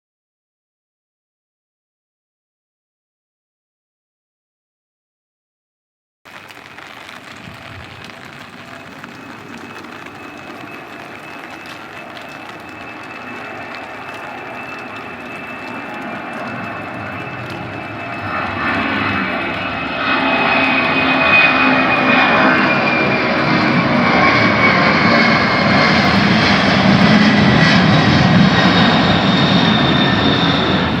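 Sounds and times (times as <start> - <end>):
airplane engines roaring: 6.3 - 31.0
high whine falling in pitch: 6.3 - 31.0.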